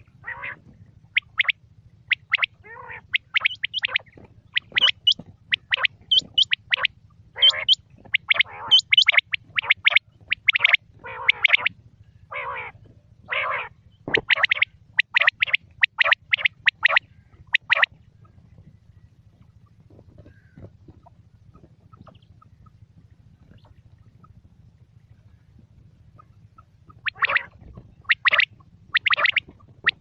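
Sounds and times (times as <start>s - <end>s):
harsh rasping calls: 0.0s - 18.4s, 25.2s - 30.0s
quail calling: 0.0s - 18.5s, 19.3s - 22.8s, 25.1s - 30.0s
faint low hum: 0.0s - 30.0s.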